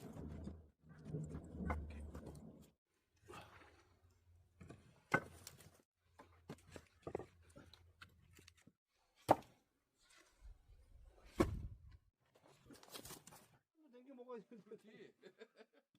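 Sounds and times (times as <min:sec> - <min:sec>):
wooden logs knocking together: 0:04.6 - 0:05.7.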